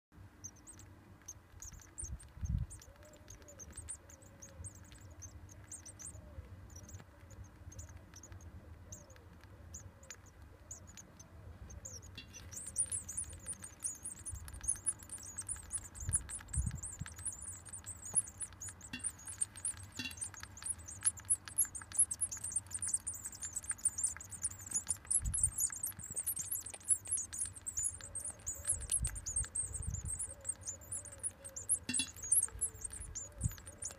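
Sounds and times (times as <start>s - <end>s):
nestlings begging calls: 11.7s - 33.9s.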